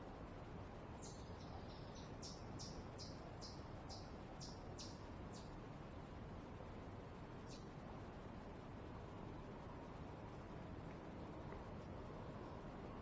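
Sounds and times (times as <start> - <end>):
low background noise: 0.0 - 13.0
songbird singing: 0.2 - 6.2, 7.2 - 8.7.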